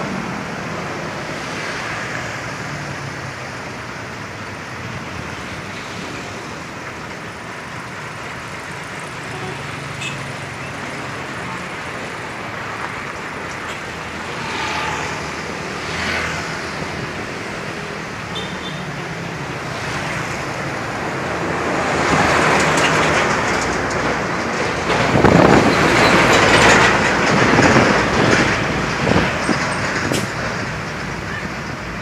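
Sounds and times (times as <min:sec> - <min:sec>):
trucks driving past: 0:00.0 - 0:32.0.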